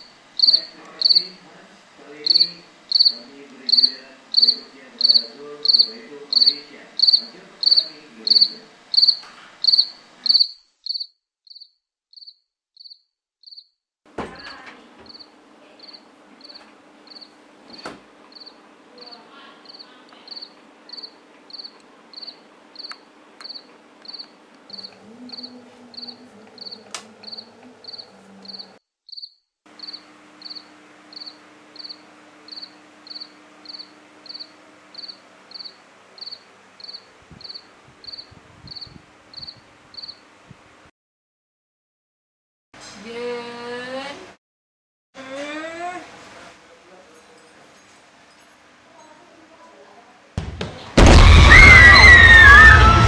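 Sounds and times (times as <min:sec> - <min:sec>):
faint low hum: 0:00.0 - 0:10.4, 0:14.1 - 0:28.8, 0:29.7 - 0:40.8
cricket chirping: 0:00.0 - 0:13.7, 0:14.3 - 0:17.4, 0:18.3 - 0:40.3.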